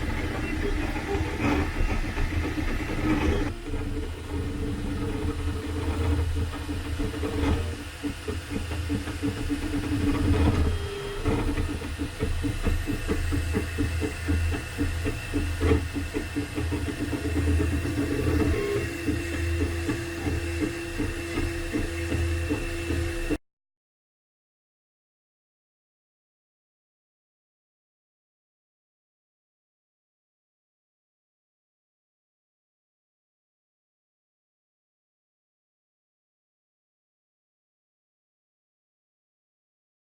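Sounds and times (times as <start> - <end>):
stepper motors whining: 0.0 - 23.4.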